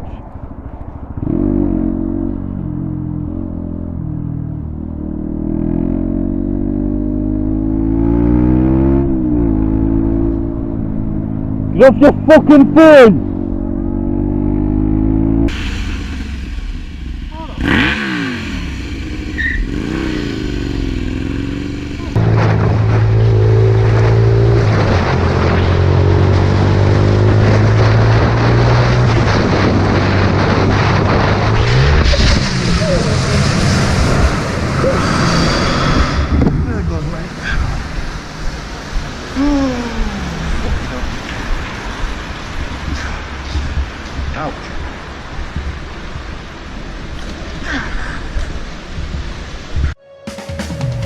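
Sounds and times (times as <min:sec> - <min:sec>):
motorcycle engine revving: 0:01.2 - 0:12.3, 0:13.3 - 0:41.3
motorcycle engine running: 0:15.8 - 0:24.0.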